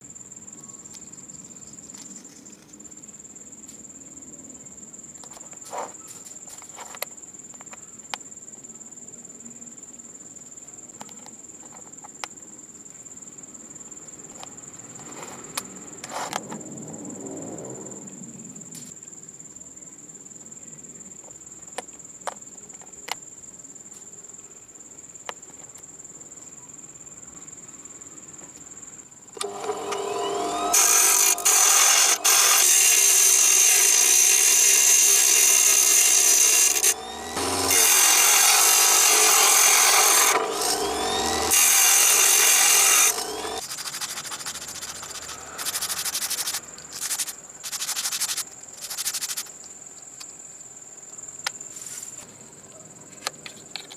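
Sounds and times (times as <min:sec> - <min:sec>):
crickets chirping: 0:00.0 - 0:53.9
power tool running: 0:29.4 - 0:43.6.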